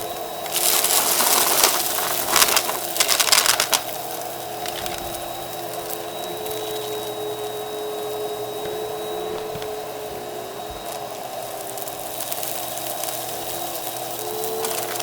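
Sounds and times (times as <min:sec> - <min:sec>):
debris crackling in vacuum: 0:00.0 - 0:07.6, 0:08.9 - 0:15.0
vacuum cleaner running: 0:00.0 - 0:15.0.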